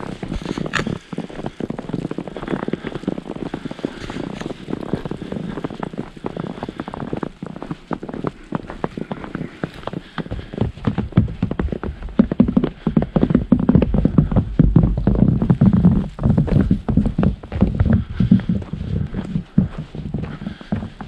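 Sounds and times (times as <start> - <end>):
boots crunching through snow: 0.0 - 21.0.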